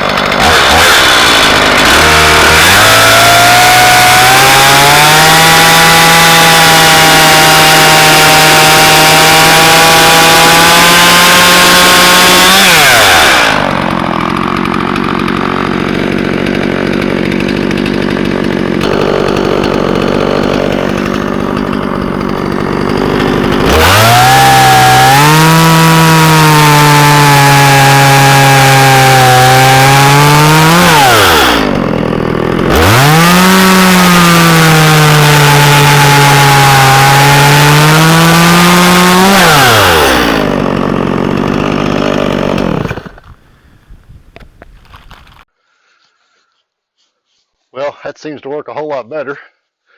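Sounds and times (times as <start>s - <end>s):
grinding wheel motor whining: 0.0s - 4.2s, 11.6s - 26.2s.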